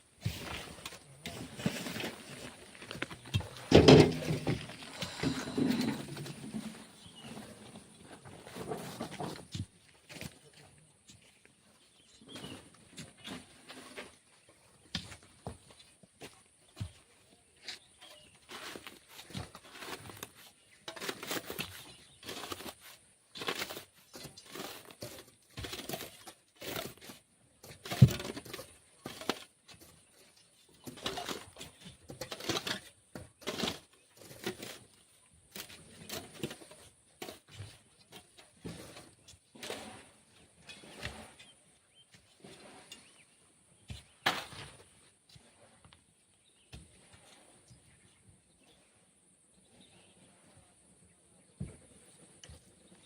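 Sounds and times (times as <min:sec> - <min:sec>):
shovel scraping and crunching sand: 0:00.1 - 0:10.6, 0:12.0 - 0:14.4, 0:17.6 - 0:49.0.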